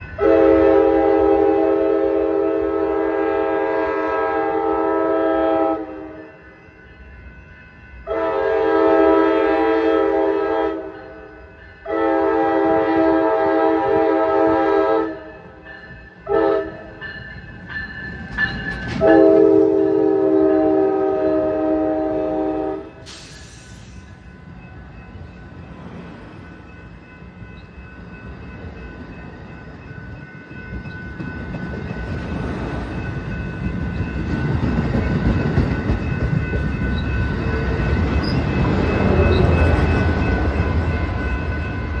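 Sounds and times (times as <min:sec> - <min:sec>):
train rumbling along tracks: 0:00.0 - 0:42.0
train horn chord: 0:00.2 - 0:06.4, 0:08.0 - 0:15.6, 0:16.2 - 0:17.0, 0:19.0 - 0:24.0
brief hiss: 0:23.0 - 0:24.2
high ringing tones: 0:23.2 - 0:42.0.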